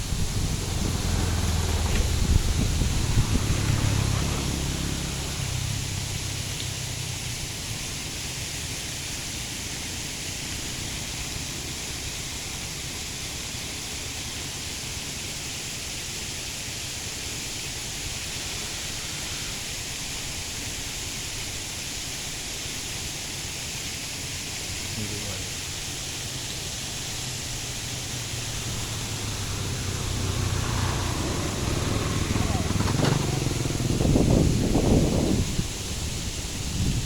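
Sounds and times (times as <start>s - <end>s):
low rumble: 0.0s - 6.6s
outdoor hiss: 0.0s - 37.0s.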